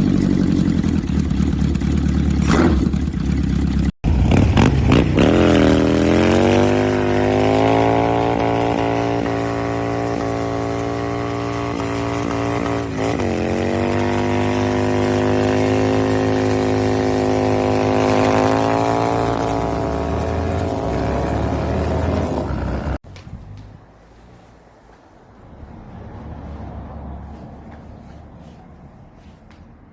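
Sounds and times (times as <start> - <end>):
motorcycle engine at high revs: 0.0 - 23.0.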